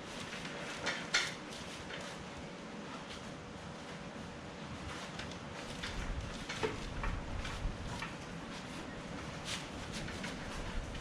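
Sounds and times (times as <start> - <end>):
light knocks clicks and scrapes: 4.7 - 11.0.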